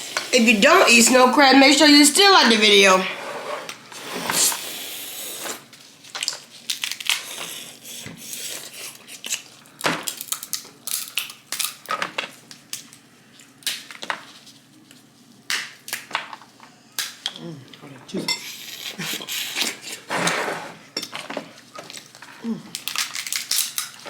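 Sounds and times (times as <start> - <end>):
crab shells cracking: 6.2 - 7.5, 9.4 - 13.0, 13.6 - 14.1, 21.9 - 24.0.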